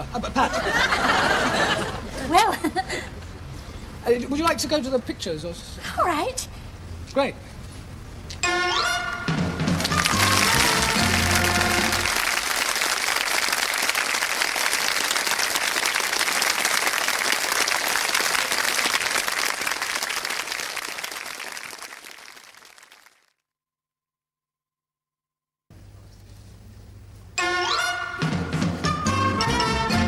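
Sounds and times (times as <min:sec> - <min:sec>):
music sting: 0:08.5 - 0:12.4
studio audience applauding: 0:09.7 - 0:23.3.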